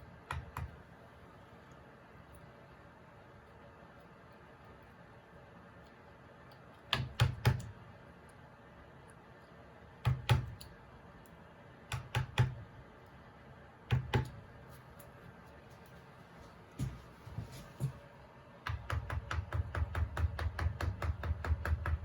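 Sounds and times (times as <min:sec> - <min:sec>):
mallet tapping a chisel: 0:18.7 - 0:22.0.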